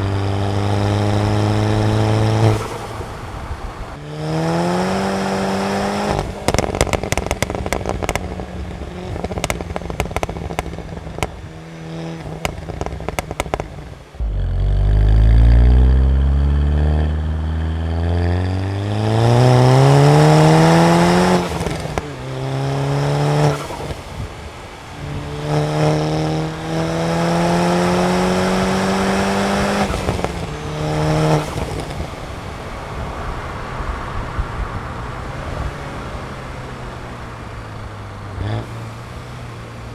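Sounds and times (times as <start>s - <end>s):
car engine driven hard: 0.0s - 39.9s
exhaust cracks and pops: 6.2s - 11.4s.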